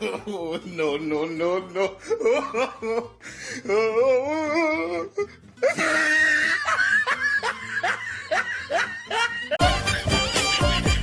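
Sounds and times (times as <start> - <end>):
music: 0.0 - 11.0
person laughing in high voice: 4.3 - 9.9.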